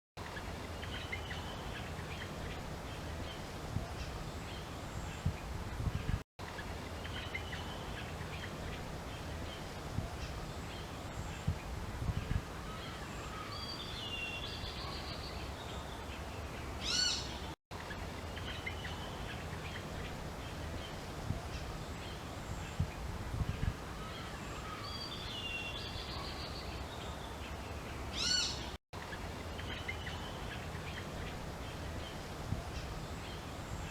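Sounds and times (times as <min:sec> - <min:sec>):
birds chirping and calling: 0:12.6 - 0:17.5, 0:18.3 - 0:33.9.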